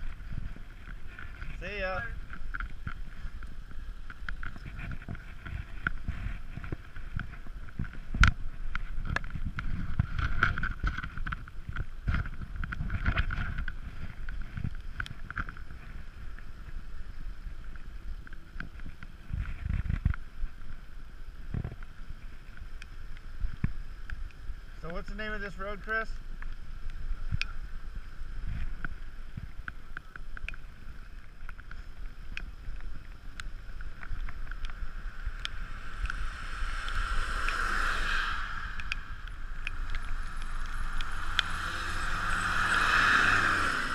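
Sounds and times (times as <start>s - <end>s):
wind buffeting microphone: 0.0s - 22.6s
bicycle clicks and rattles: 0.0s - 24.4s
tyre and road noise: 0.0s - 43.9s.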